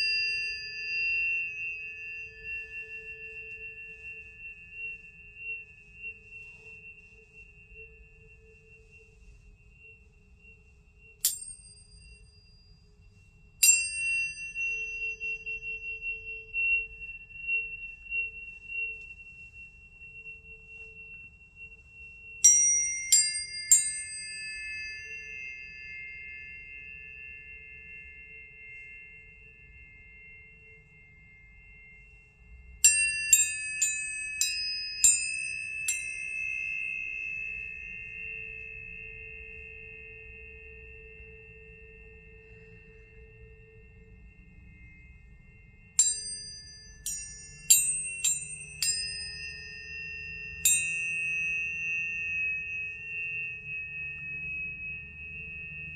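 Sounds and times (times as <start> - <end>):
tuning forks ringing: 0.0 - 55.9.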